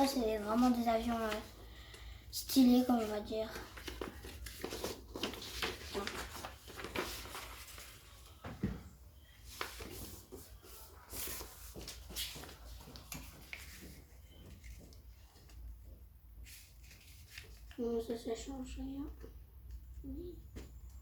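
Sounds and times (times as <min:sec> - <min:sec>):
paper being folded and creased: 0:02.8 - 0:08.3, 0:09.4 - 0:15.7, 0:16.4 - 0:18.1.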